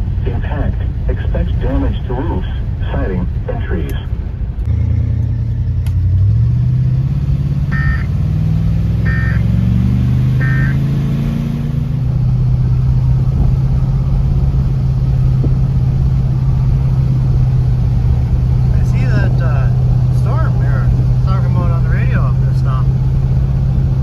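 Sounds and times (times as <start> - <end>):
car engine pulling away: 4.3 - 24.0
short high beeps: 7.7 - 8.1, 9.1 - 9.5, 10.4 - 11.0.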